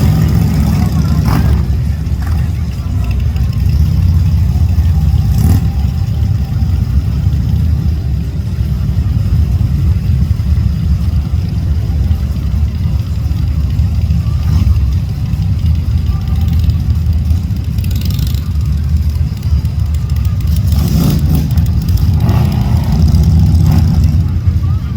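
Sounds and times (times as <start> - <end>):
motorcycle engine rumbling: 0.0 - 24.9.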